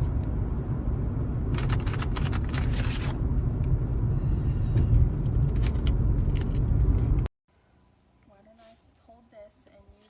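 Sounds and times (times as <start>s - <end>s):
steady low rumble: 0.0s - 7.3s.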